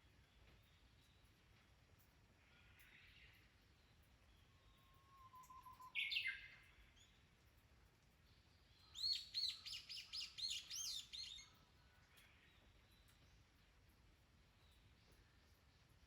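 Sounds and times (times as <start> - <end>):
songbird chirping: 2.8 - 7.2, 8.2 - 13.8.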